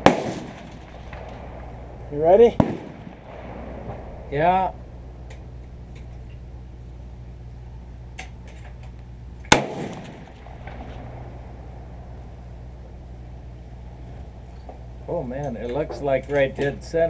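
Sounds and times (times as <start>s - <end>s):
rifle shot with echo: 0.0s - 4.8s, 9.5s - 11.5s
steady low hum: 0.0s - 17.0s.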